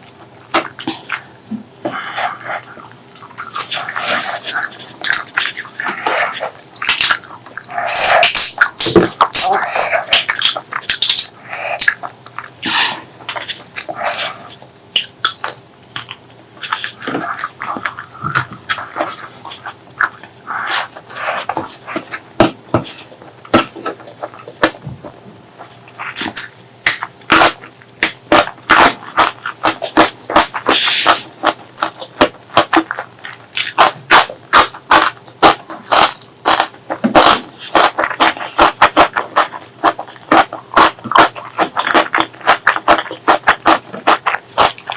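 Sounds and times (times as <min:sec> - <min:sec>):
person chewing and mouth sounds: 0:00.0 - 0:44.9
sharp mouth clicks and smacks: 0:02.1 - 0:20.3.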